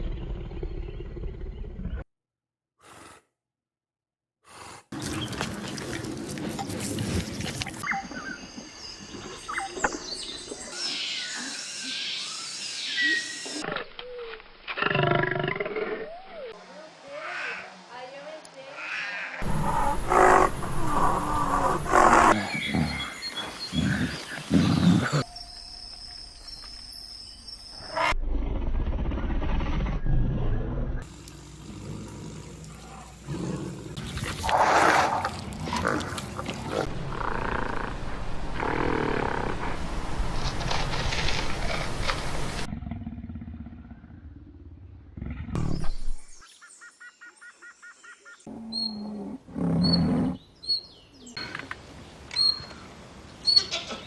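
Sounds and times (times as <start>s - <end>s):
deep growls: 0.0s - 2.1s, 19.4s - 23.1s, 28.2s - 45.9s
big cat roaring: 19.4s - 23.0s, 31.6s - 38.0s, 42.7s - 45.6s
high bird chirps: 52.3s - 52.8s.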